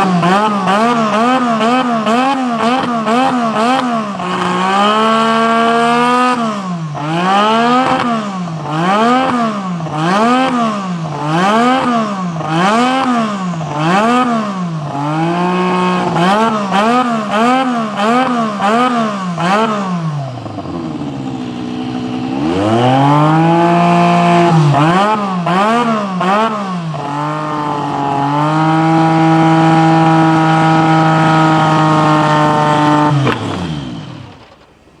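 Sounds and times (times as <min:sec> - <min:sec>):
racing car engine revving: 0:00.0 - 0:34.6.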